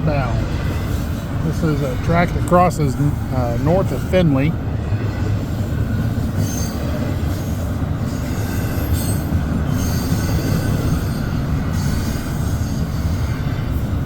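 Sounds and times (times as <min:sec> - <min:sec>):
train wheels rumbling on rail: 0:00.0 - 0:14.0
high wheel squeals: 0:05.9 - 0:13.7.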